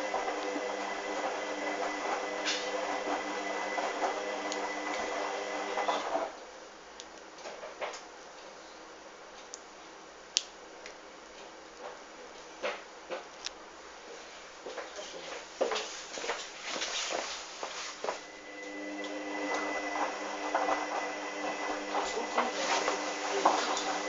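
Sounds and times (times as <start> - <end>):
washing machine motor hum: 0.0 - 6.4, 18.0 - 24.0.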